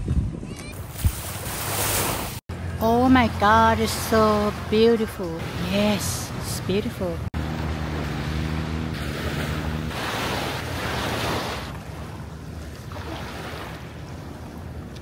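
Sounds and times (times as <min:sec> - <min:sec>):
wind buffeting microphone: 0:00.0 - 0:01.8
sea waves washing in: 0:00.8 - 0:15.0
engine hum: 0:02.0 - 0:15.0.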